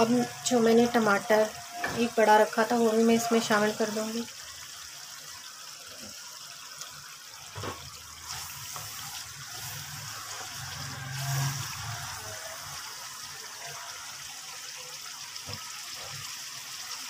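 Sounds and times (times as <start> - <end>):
masala sizzling and bubbling: 0.0 - 17.0
spatula scraping a pan: 8.3 - 11.9.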